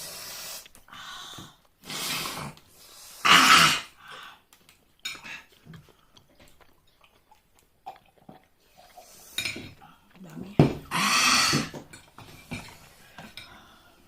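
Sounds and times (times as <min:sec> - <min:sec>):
person breathing hard: 0:00.0 - 0:03.3.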